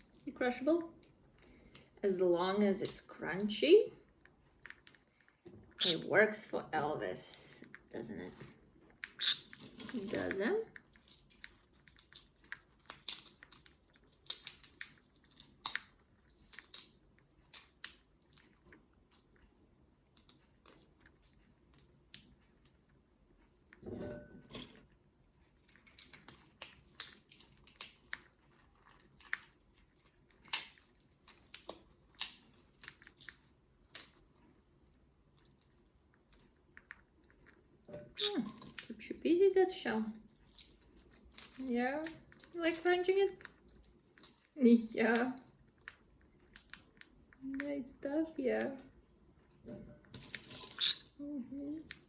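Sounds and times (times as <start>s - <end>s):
parrot crunching nut shell: 7.2s - 19.4s, 25.6s - 39.0s, 40.3s - 47.4s, 50.0s - 51.2s.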